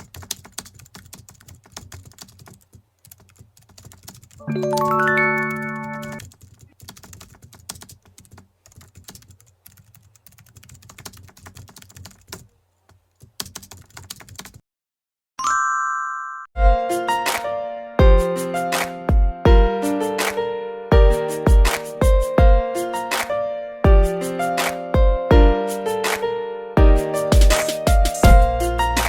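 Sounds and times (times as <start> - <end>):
computer keyboard typing: 0.0 - 14.6
short musical chord: 4.4 - 6.2.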